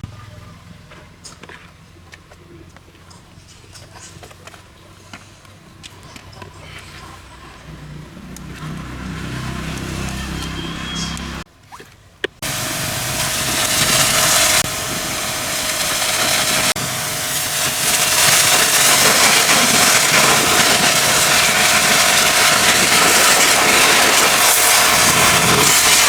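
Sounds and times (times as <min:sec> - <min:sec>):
pressure washer spraying: 0:12.4 - 0:26.0.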